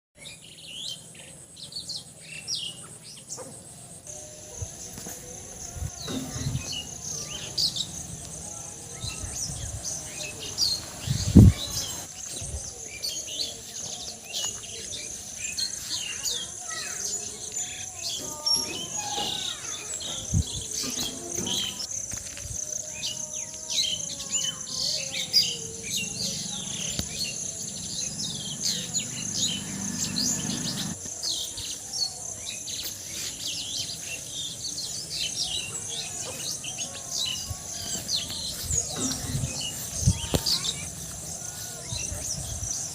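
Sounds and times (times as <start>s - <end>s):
birds chirping and calling: 0.2s - 42.9s
high-pitched insect drone: 15.2s - 42.9s.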